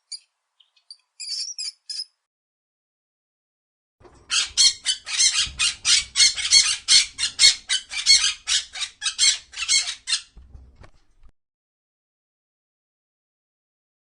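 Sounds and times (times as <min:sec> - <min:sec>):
bird squawking harshly: 0:04.3 - 0:10.4.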